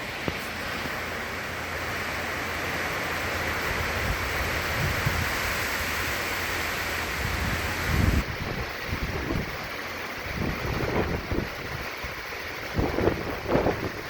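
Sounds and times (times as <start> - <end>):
hurricane wind and rain roaring: 0.0 - 14.0
wind gusts buffeting microphone: 3.5 - 14.0.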